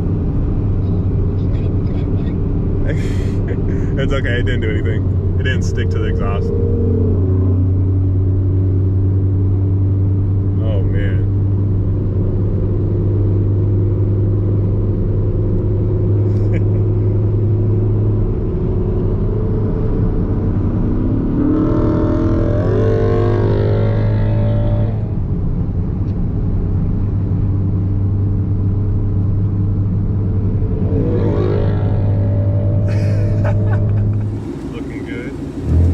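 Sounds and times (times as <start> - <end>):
car engine and road drone: 0.0 - 35.9
engine revving up: 30.8 - 35.9.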